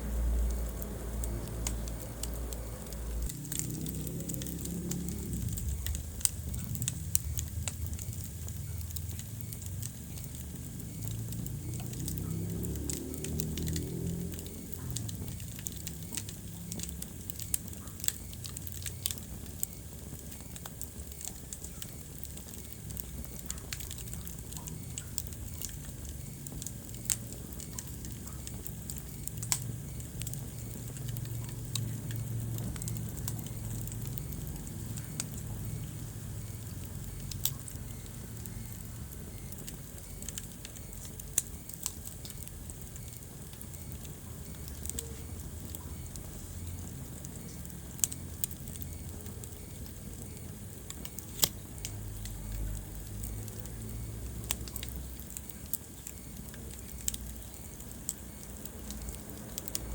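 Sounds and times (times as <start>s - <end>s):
low fire rumble: 0.0s - 59.9s
wood fire crackling and popping: 0.0s - 59.9s.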